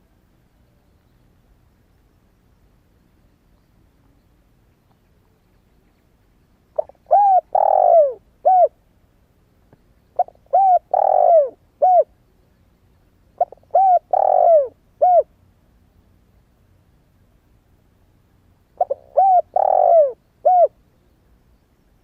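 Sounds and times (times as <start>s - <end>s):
dove cooing: 6.8s - 8.8s, 10.2s - 12.1s, 13.4s - 15.3s, 18.8s - 20.8s.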